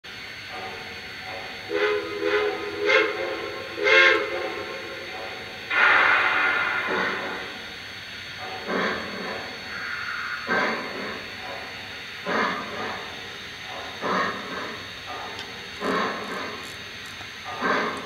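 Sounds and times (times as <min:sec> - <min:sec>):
loud hiss of steam: 0:01.6 - 0:07.8, 0:08.7 - 0:11.4
toy train whistle blasts: 0:01.7 - 0:04.6.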